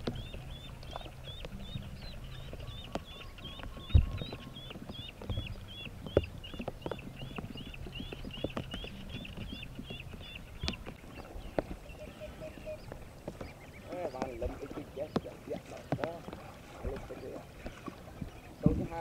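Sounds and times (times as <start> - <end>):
duckling peeping: 0.0 - 17.4
sharp knocks and clicks: 2.5 - 11.8.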